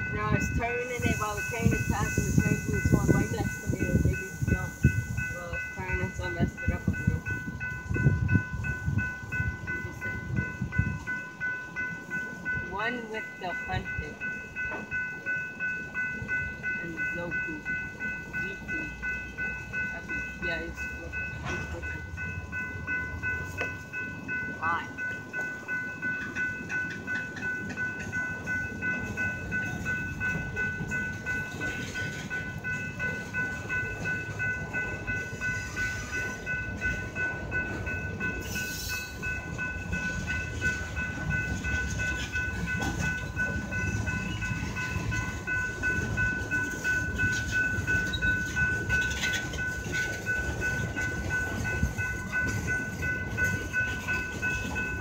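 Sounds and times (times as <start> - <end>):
freight train rumbling: 0.0 - 55.0
high-pitched ringing tone: 0.0 - 55.0
wheels clacking over rail joints: 21.1 - 55.0.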